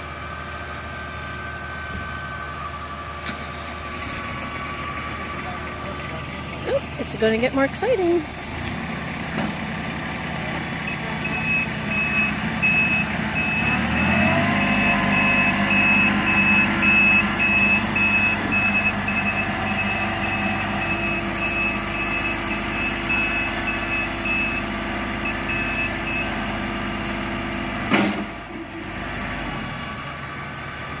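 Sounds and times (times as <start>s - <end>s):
work vehicle engine revving: 3.2s - 31.0s
reversing alarm beeps: 10.9s - 26.4s
sharp knock: 27.9s - 28.4s.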